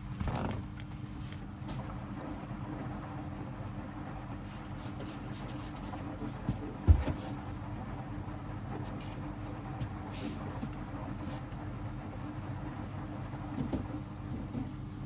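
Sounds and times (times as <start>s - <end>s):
washing machine motor humming: 0.0s - 15.0s
dull thump: 6.8s - 7.2s.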